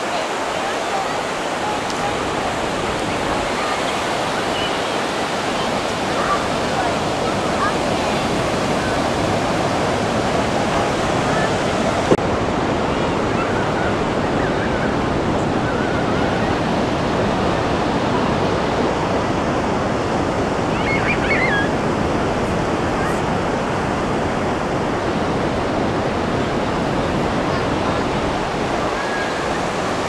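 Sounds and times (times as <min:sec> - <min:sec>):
ocean surf breaking: 0:00.0 - 0:30.0.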